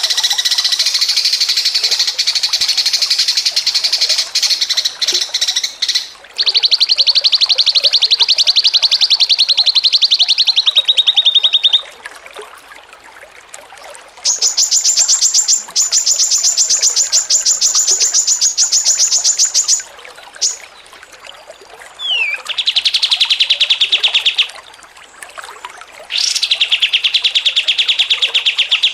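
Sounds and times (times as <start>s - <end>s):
songbird rattling trills: 14.3s - 20.7s.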